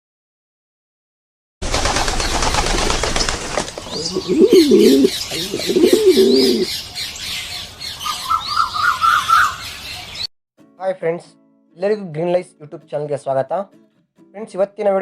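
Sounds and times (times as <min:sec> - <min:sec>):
bird wings flapping: 0:01.6 - 0:05.1
dove cooing: 0:03.9 - 0:06.7.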